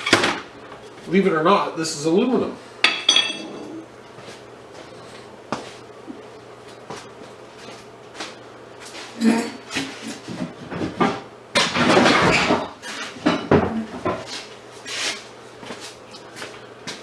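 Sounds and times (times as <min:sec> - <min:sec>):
metal scrap clinking: 0:02.9 - 0:03.6.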